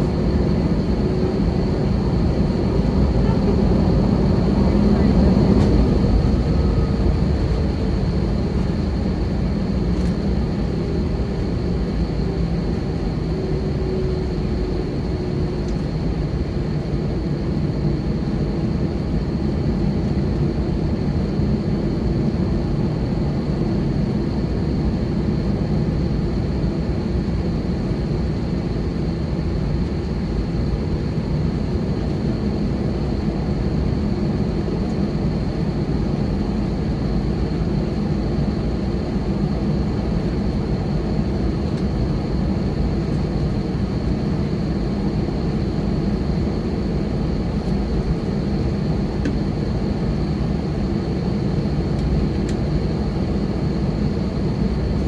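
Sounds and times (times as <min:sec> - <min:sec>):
cabin low rumble: 0:00.0 - 0:16.1.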